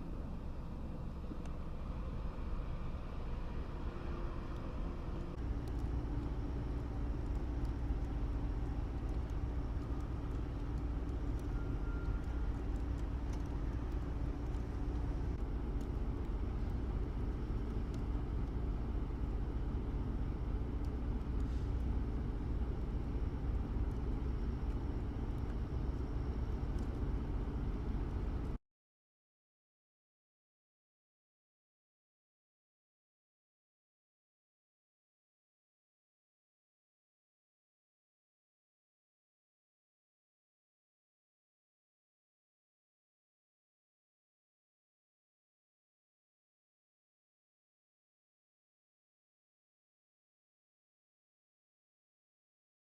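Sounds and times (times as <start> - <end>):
vehicle engine and road rumble: 0.0 - 28.6.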